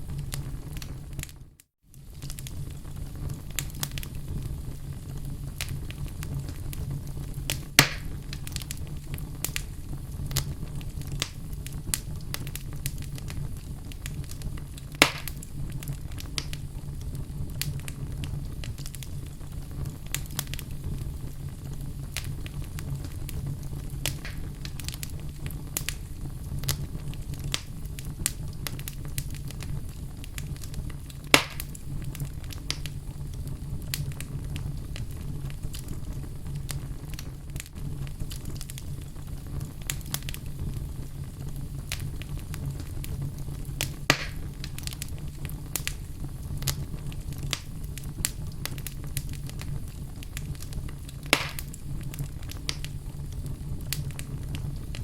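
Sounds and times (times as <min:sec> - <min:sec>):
fire crackling: 0:00.0 - 0:55.0
fire low rumble: 0:00.0 - 0:55.0
loud wood pops: 0:07.8 - 0:08.1, 0:15.0 - 0:15.4, 0:24.1 - 0:24.4, 0:31.3 - 0:31.8, 0:44.1 - 0:44.4, 0:51.3 - 0:51.8.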